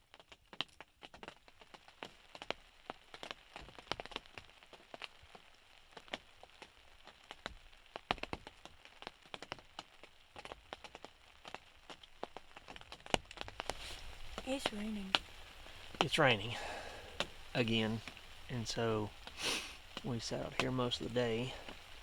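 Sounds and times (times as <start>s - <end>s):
raindrops ticking close by: 0.0s - 22.0s
rain hiss: 1.3s - 22.0s.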